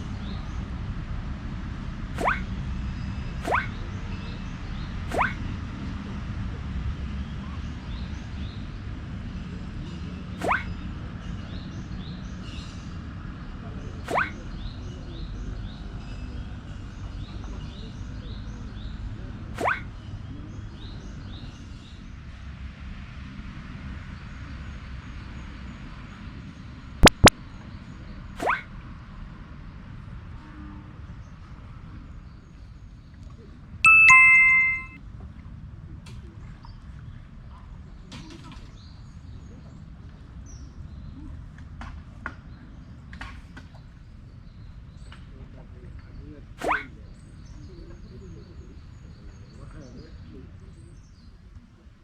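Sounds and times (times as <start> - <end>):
faint bird chirp: 3.0 - 5.5, 9.8 - 12.8, 33.9 - 35.0
sharp loud clicks: 27.0 - 27.3
birds chirping faintly: 33.9 - 35.0.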